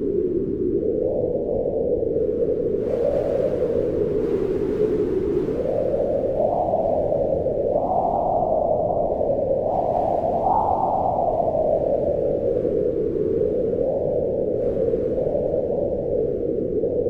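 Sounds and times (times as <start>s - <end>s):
wind howling in gusts: 0.0s - 17.0s.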